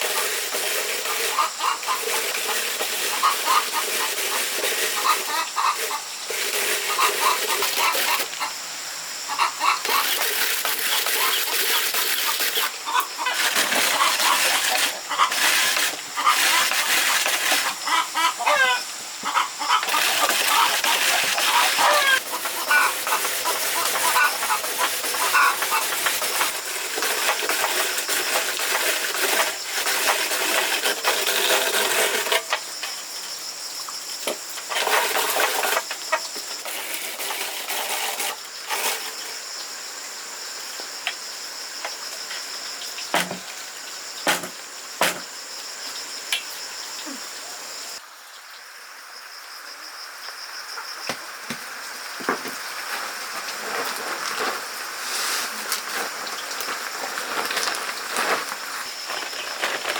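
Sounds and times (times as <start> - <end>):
chickens clucking: 0.0 - 8.6, 9.3 - 30.0
steady hiss: 0.0 - 59.9
sharp knocks: 43.1 - 43.5, 44.2 - 45.3.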